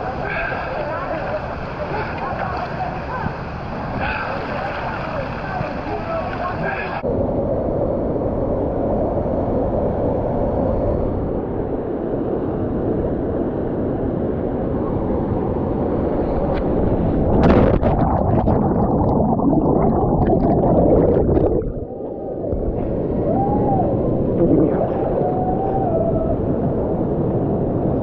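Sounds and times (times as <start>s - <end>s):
muffled underwater bubbling: 17.2s - 26.2s.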